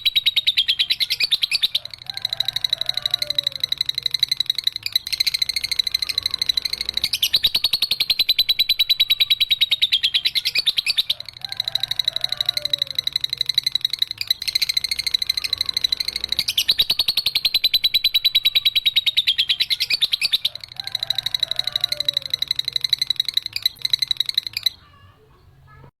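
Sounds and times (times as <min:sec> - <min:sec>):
lovebird high-pitched trill: 0:00.0 - 0:25.2.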